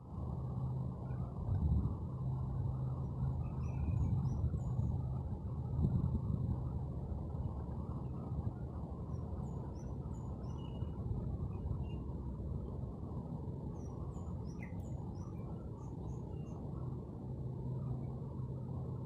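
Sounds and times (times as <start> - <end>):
low background rumble: 0.0 - 19.0
small birds chirping: 13.8 - 16.6.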